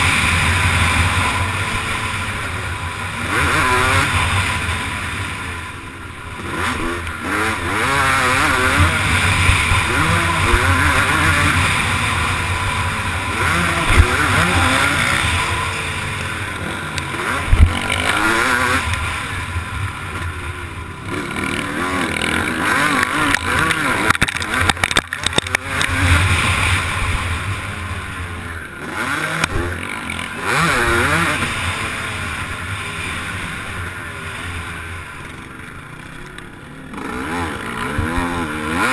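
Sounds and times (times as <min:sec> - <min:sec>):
motocross bike engine revving: 0:00.0 - 0:38.9
sharp thumps: 0:13.4 - 0:19.1.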